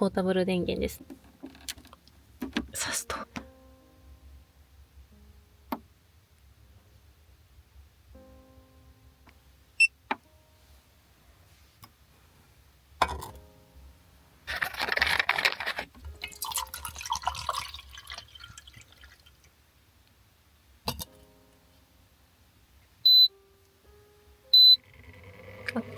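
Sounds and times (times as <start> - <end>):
handling clicks and knock: 1.0 - 2.7
water pouring into vessel: 14.6 - 19.5.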